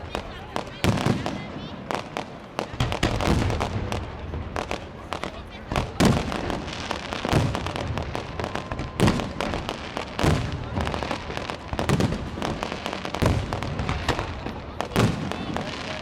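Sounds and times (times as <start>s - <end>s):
fireworks crackling and popping: 0.0s - 16.0s.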